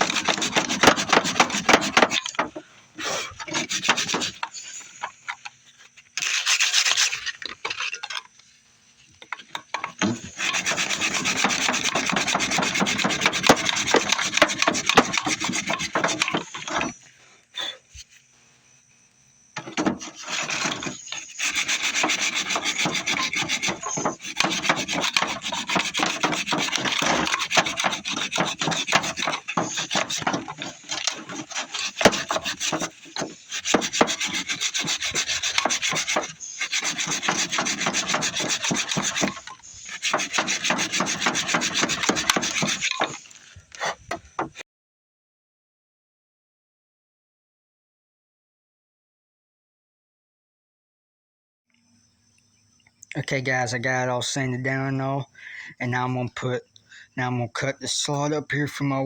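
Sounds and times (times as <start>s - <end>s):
sandpaper rubbing on wood: 0.0s - 2.4s, 3.5s - 4.8s, 6.2s - 7.3s, 10.0s - 17.0s, 19.6s - 44.0s.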